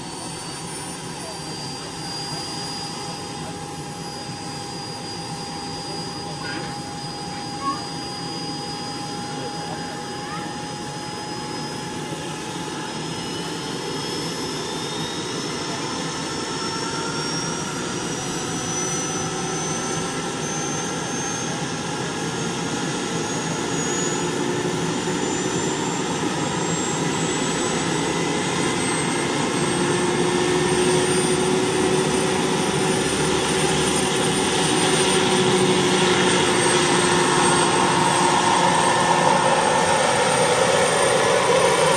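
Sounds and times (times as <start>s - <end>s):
model helicopter whine: 0.0s - 41.9s.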